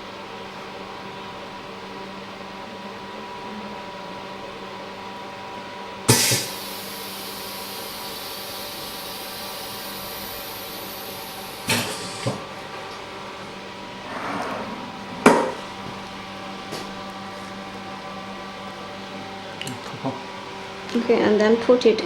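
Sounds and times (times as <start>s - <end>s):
laminator machine humming: 6.0s - 21.4s
loud air hiss: 6.1s - 12.4s
sharp knocks: 15.2s - 15.7s.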